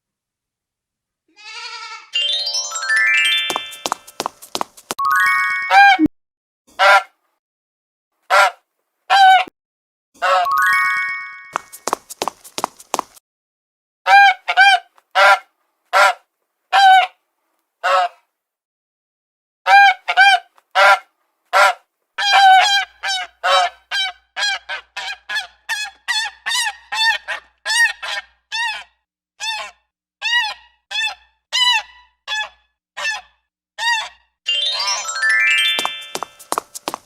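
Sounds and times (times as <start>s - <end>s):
rising musical chime: 2.2s - 3.8s, 5.0s - 5.8s, 10.5s - 11.6s, 34.5s - 36.2s.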